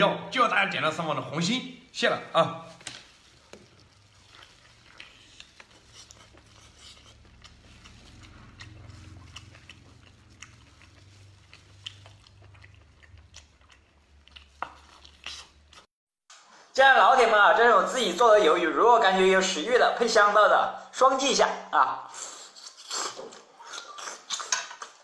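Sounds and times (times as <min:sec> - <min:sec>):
man chewing: 0:02.8 - 0:15.9, 0:22.1 - 0:25.0.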